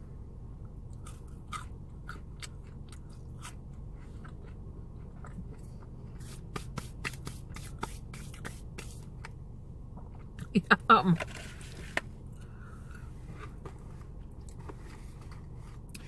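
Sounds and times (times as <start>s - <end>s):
low steady hum: 0.0s - 16.0s
chewing and biting food: 0.9s - 6.2s.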